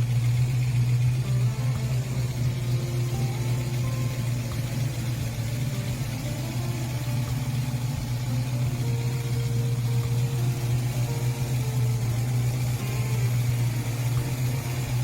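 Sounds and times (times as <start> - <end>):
car engine idling: 0.0 - 15.0
faint music notes: 0.0 - 15.0.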